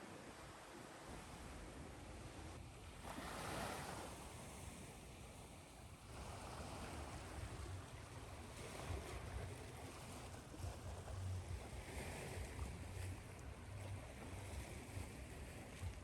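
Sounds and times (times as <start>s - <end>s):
ocean waves washing ashore: 0.0s - 16.0s.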